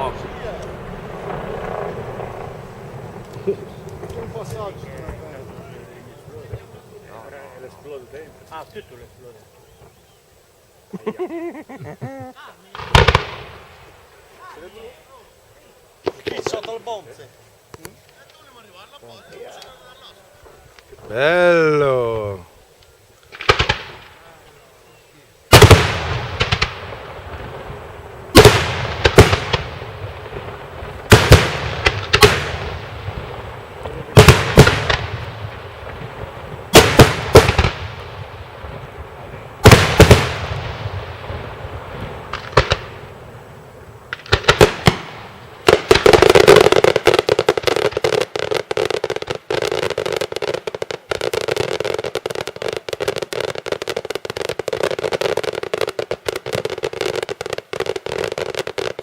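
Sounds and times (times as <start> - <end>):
loud firework bangs: 0.0 - 9.0, 12.7 - 15.0, 16.0 - 17.3, 23.3 - 24.4, 25.5 - 59.0
rapid firecracker crackle: 0.0 - 59.0.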